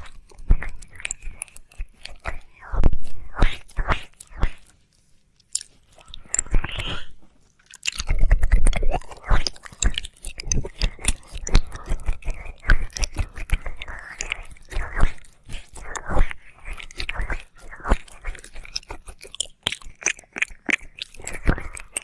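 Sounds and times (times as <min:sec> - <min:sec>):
wet mouth clicks and smacks: 0:00.0 - 0:04.8, 0:05.4 - 0:22.0.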